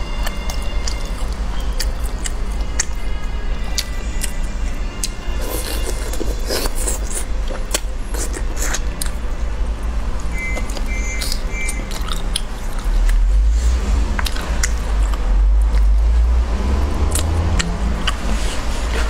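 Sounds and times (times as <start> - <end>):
close chewing and biting: 0.0 - 9.4, 10.3 - 13.3, 14.0 - 16.1, 16.9 - 19.0
steady low rumble: 8.9 - 19.0
short high beeps: 10.4 - 11.9.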